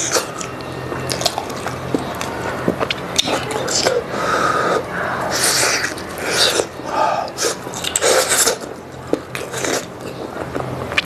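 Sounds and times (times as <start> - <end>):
breathy mouth sounds eating: 2.8 - 11.0.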